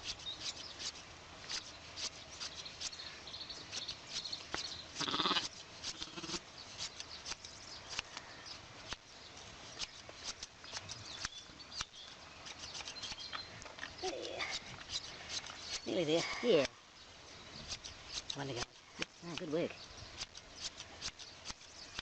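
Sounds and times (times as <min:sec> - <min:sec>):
sheep bleating: 0:05.0 - 0:06.4.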